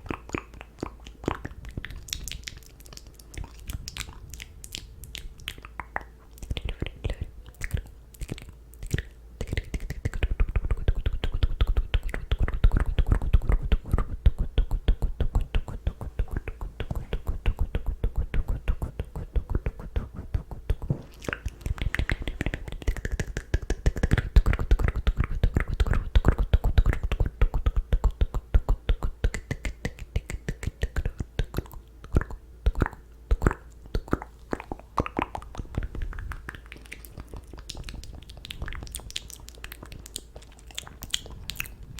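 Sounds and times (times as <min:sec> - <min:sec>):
wet mouth clicks and pops: 0:00.0 - 0:41.8.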